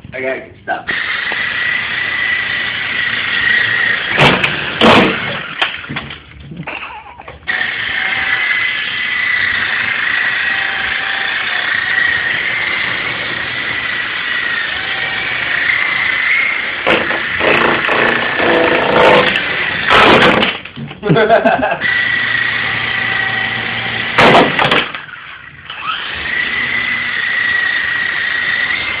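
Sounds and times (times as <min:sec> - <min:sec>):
toy helicopter motor whine: 0:00.9 - 0:04.2, 0:07.5 - 0:19.9, 0:21.8 - 0:24.2, 0:25.1 - 0:29.0
sharp knocks: 0:04.1 - 0:06.2, 0:24.2 - 0:25.0.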